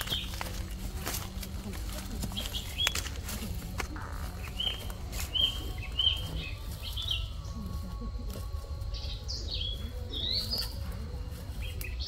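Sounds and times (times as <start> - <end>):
faint footsteps on leaves: 0.0 - 12.0
small birds chirping: 0.0 - 12.0.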